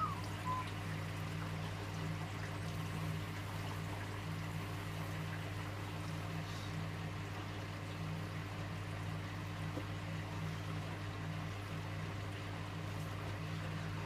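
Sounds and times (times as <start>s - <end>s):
washing machine humming: 0.0s - 14.0s.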